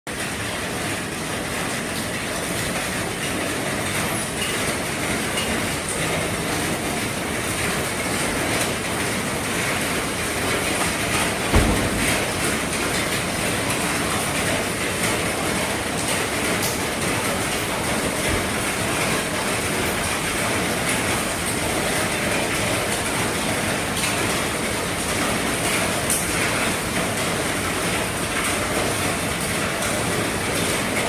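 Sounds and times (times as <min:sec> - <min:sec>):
heavy rain drumming on a roof: 0:00.1 - 0:31.0
dull thump: 0:11.5 - 0:12.7.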